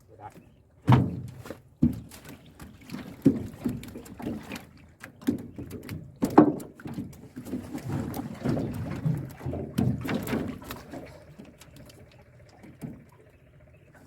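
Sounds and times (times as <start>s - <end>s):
knocks on wooden boat: 0.8s - 2.1s, 5.2s - 7.1s, 8.4s - 10.8s.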